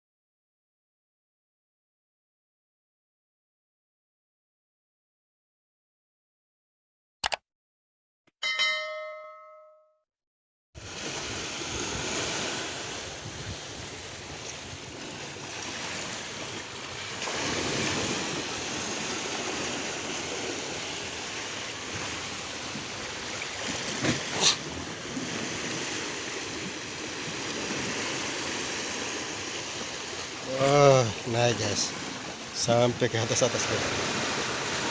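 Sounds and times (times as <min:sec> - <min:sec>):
short ringing chime: 0:08.4 - 0:10.0
sea waves rushing: 0:10.8 - 0:34.9
wind: 0:10.8 - 0:34.9.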